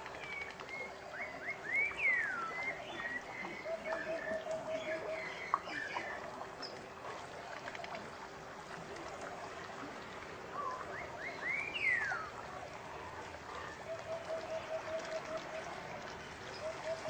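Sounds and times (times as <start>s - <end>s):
bird whistling: 1.2s - 6.0s, 10.9s - 12.3s.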